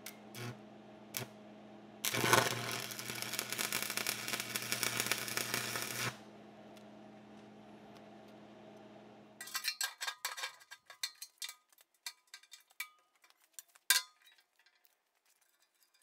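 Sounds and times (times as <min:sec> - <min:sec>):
arc welding crackling: 0:00.0 - 0:01.4, 0:02.0 - 0:08.0.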